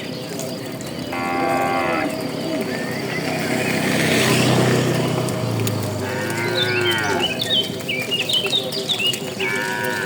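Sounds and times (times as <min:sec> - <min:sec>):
bird chirping: 0:00.0 - 0:10.0
cow mooing: 0:01.1 - 0:02.3, 0:05.9 - 0:07.4, 0:09.4 - 0:10.0.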